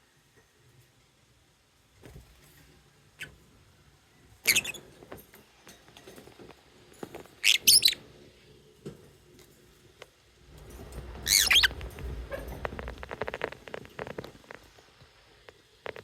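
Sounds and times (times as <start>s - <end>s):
lovebirds chirping shrilly: 7.4s - 8.0s, 11.2s - 11.7s.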